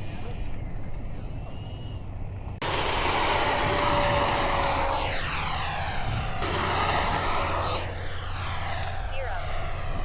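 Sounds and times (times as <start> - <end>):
wind rumble on microphone: 0.0 - 2.6, 5.4 - 7.5
model jet fan whine passing: 2.6 - 10.0.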